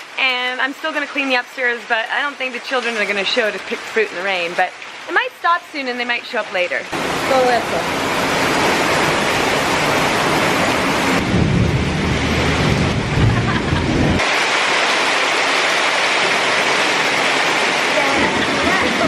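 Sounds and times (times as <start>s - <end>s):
heavy rain falling: 0.0s - 19.0s
deep low rumble: 11.2s - 14.2s.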